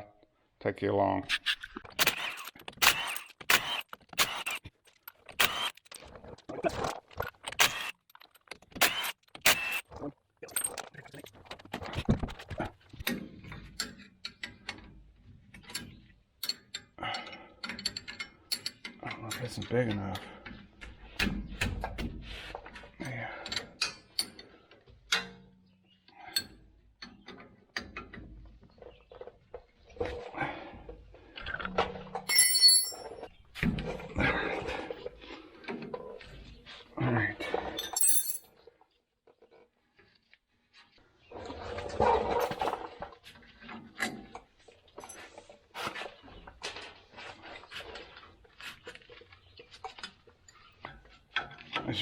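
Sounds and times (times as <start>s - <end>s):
metal tools clanking and knocking: 1.6s - 12.3s, 31.8s - 34.0s, 37.5s - 38.5s
metal hand tools clinking: 32.3s - 33.2s, 37.8s - 38.5s.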